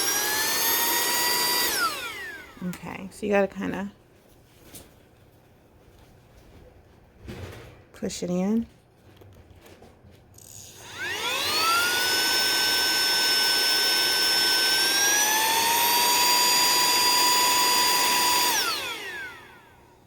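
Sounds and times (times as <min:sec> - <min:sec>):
handheld vacuum motor whine: 0:00.0 - 0:02.6, 0:10.4 - 0:20.0.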